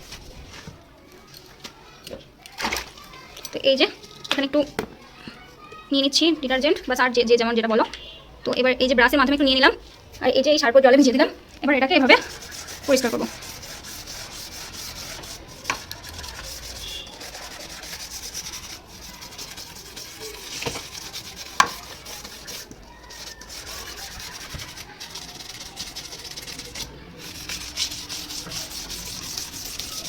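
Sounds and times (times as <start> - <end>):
brush scrubbing: 12.0 - 30.0.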